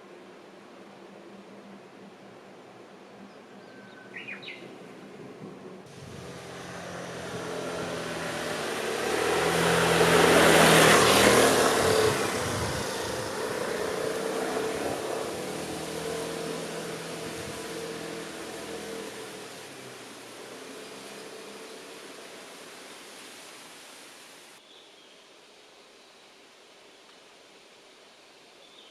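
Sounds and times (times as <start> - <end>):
vehicle engine passing by: 5.8 - 24.0.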